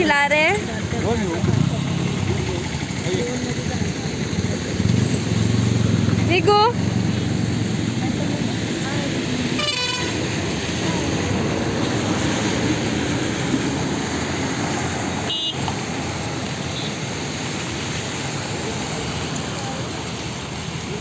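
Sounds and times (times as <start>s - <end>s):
road traffic rumble: 0.0s - 21.0s
vehicle horn toot: 9.6s - 10.2s, 15.3s - 15.7s.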